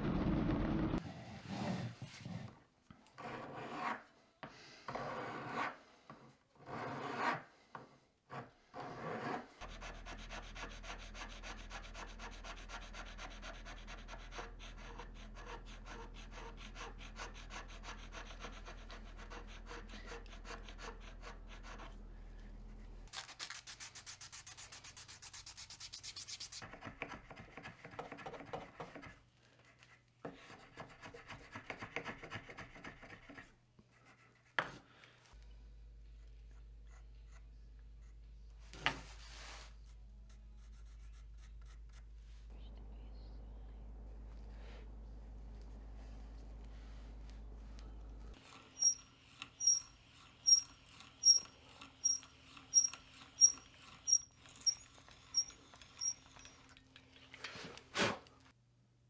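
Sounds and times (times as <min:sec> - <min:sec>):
sandpaper rubbing on wood: 0:23.1 - 0:26.6
steady low hum: 0:41.4 - 0:48.4.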